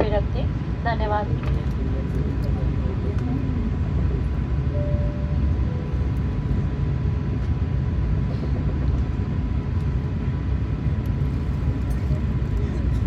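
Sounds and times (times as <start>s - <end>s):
airplane cabin low rumble: 0.0s - 13.0s
faint high tone: 4.7s - 6.0s.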